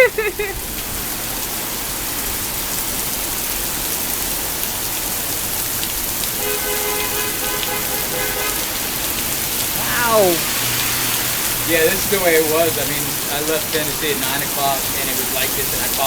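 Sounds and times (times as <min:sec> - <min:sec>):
rain pouring: 0:00.0 - 0:16.0.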